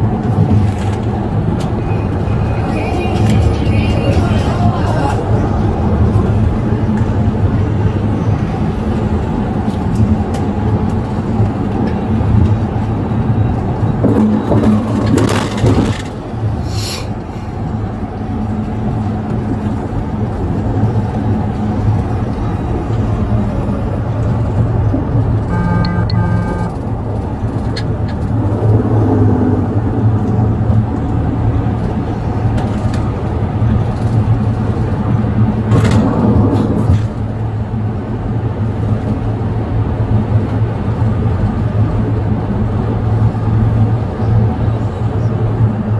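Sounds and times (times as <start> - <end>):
wind noise on microphone: 0.0 - 25.6, 26.5 - 45.9.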